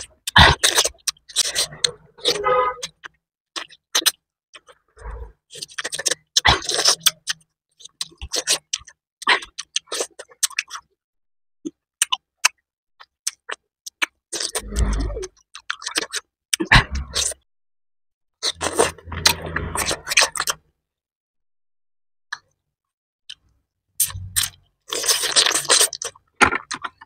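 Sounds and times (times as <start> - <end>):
chewing and lip smacking: 5.6 - 10.9, 11.7 - 17.4, 23.3 - 27.0.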